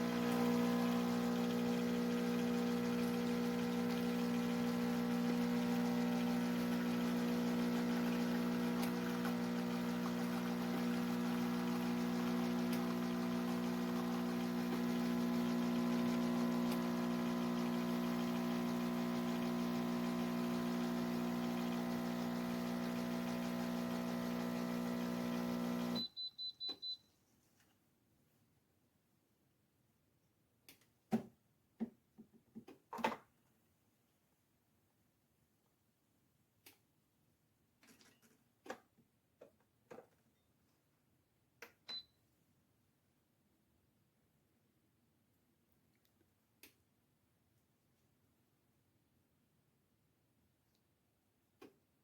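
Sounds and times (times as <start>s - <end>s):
espresso machine pump humming: 0.0s - 26.0s.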